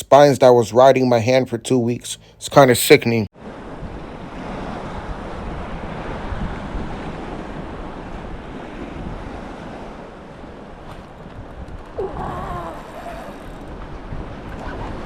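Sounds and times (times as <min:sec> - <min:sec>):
wind buffeting microphone: 0:03.5 - 0:15.0
water lapping against a kayak: 0:06.1 - 0:15.0.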